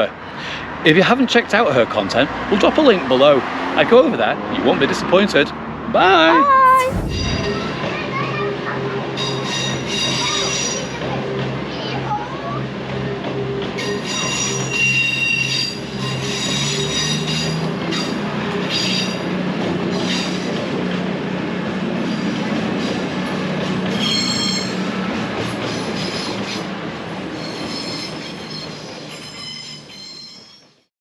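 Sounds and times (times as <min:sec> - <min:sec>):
train rumbling on rails: 0:06.5 - 0:30.1
train wheels squealing: 0:13.8 - 0:19.3, 0:23.9 - 0:25.0, 0:25.6 - 0:26.6, 0:27.2 - 0:30.9.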